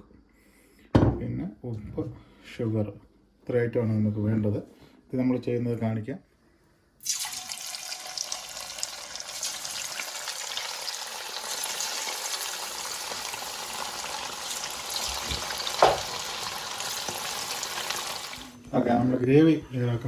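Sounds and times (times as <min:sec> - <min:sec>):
chicken frying in hot oil: 0:07.0 - 0:18.6.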